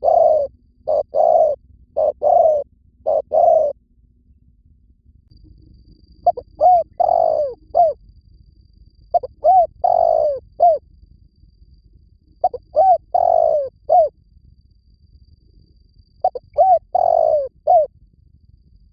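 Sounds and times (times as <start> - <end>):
dove cooing: 0.0 - 3.8, 6.2 - 8.0, 9.1 - 10.8, 12.4 - 14.1, 16.2 - 17.9.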